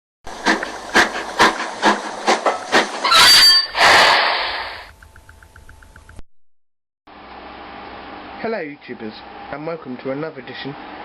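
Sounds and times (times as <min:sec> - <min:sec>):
train wheels clattering: 0:00.3 - 0:03.2
brief squeal: 0:03.0 - 0:04.4
air hiss: 0:03.8 - 0:04.9.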